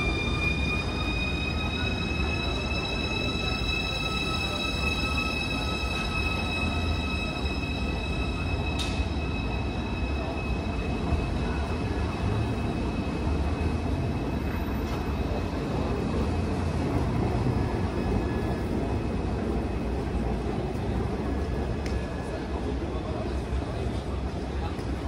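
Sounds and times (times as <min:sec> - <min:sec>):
electric train rumbling: 0:00.0 - 0:25.0.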